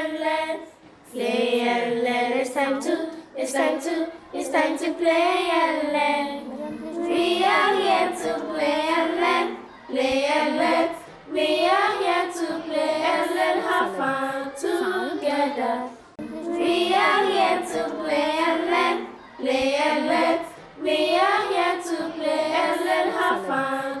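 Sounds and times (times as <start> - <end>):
children singing: 0.0 - 24.0.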